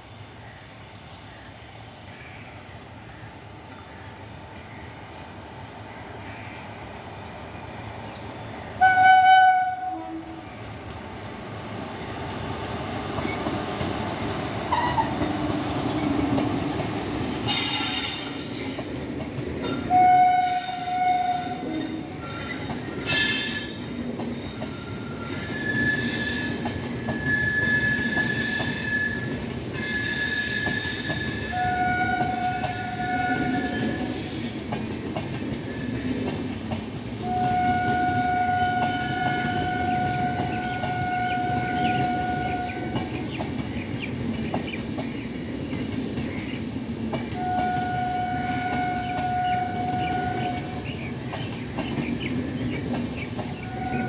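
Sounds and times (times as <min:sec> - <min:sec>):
locomotive horn blast: 0:08.8 - 0:10.4, 0:19.9 - 0:22.1, 0:31.5 - 0:33.8, 0:37.2 - 0:42.9, 0:47.4 - 0:50.7, 0:53.7 - 0:54.0
train wheels clattering on rail: 0:11.8 - 0:54.0
high wheel squeal: 0:24.6 - 0:31.7, 0:35.6 - 0:36.7.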